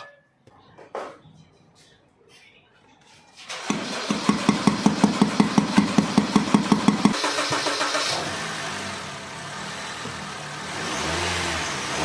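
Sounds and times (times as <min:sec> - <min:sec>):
starter cranking engine: 0:03.5 - 0:08.5
car engine running: 0:03.7 - 0:12.0.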